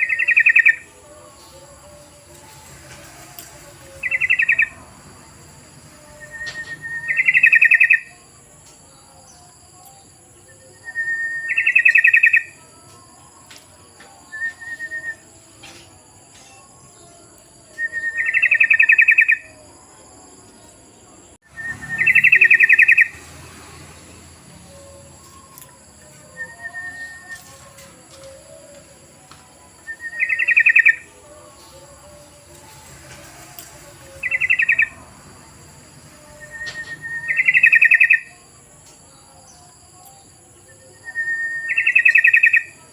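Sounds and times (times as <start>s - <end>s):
bird call with rattling trill: 0.0s - 0.9s, 2.2s - 4.8s, 6.2s - 8.2s, 11.1s - 12.6s, 17.8s - 19.6s, 21.5s - 23.2s, 29.9s - 31.1s, 31.7s - 35.0s, 36.3s - 38.4s, 40.9s - 42.8s.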